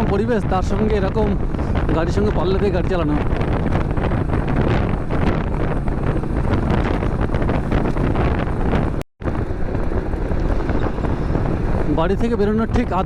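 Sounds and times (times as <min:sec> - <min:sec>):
road noise: 0:00.0 - 0:13.0
wind rushing over microphone: 0:00.0 - 0:13.0
motorbike engine: 0:03.3 - 0:12.8.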